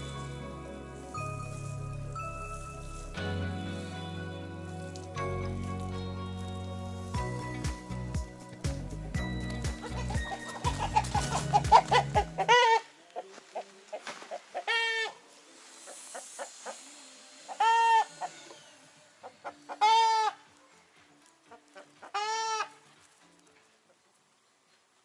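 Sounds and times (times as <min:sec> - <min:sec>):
chickens clucking: 0:09.1 - 0:15.2, 0:15.8 - 0:18.6, 0:19.2 - 0:20.5, 0:21.5 - 0:22.9
loud drawn-out chicken calls: 0:09.8 - 0:12.9, 0:14.3 - 0:15.2, 0:15.9 - 0:20.4, 0:22.0 - 0:22.8.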